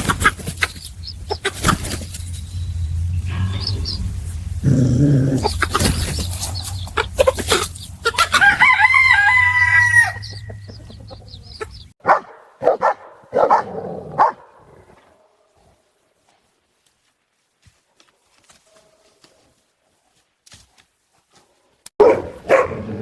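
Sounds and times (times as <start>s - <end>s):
animal calls: 0.0s - 11.9s.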